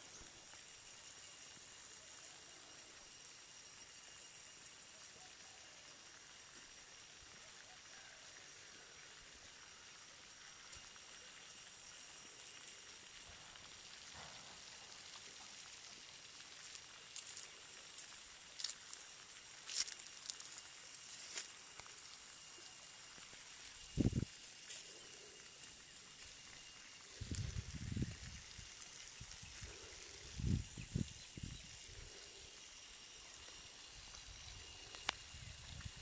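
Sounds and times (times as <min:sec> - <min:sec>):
steady high hiss: 0:00.0 - 0:36.0.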